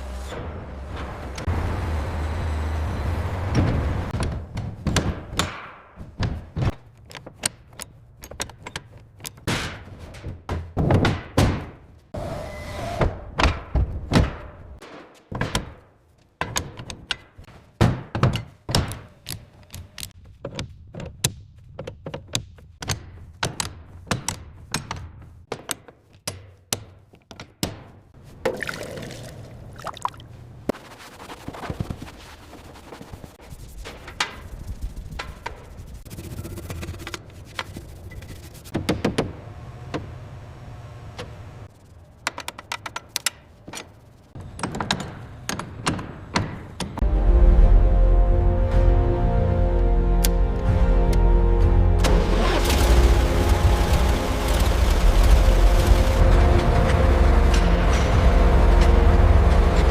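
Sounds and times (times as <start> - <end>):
sharp knocks and thunks: 3.5 - 12.0, 13.0 - 19.2, 38.7 - 40.1.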